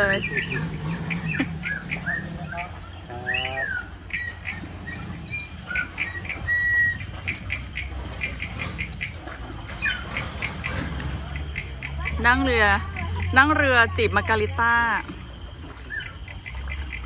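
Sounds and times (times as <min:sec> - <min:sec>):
swooping bird squawk: 0:00.0 - 0:09.2
birds chirping: 0:00.0 - 0:17.0
low steady rumble: 0:00.0 - 0:17.0.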